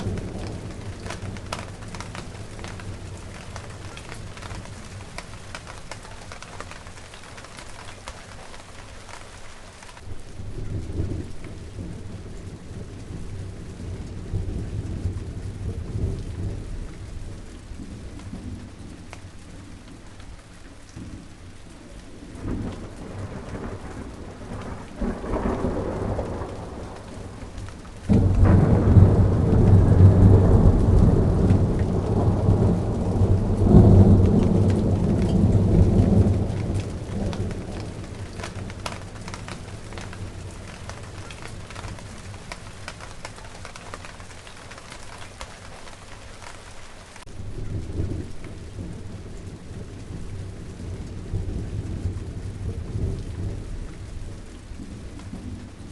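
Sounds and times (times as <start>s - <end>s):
thunder clap: 0.0s - 9.2s, 22.1s - 46.6s
steady rain falling: 0.0s - 55.9s
thunder rumbling: 0.0s - 55.9s.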